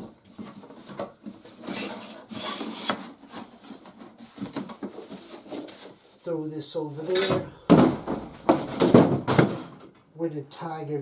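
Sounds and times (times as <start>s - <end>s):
cardboard rubbing and scraping: 0.3s - 6.2s.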